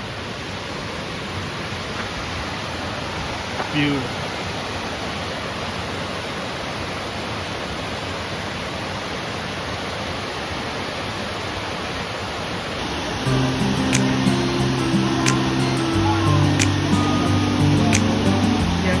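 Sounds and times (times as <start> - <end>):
waterfall rushing: 10.0 - 19.0
music: 13.3 - 19.0.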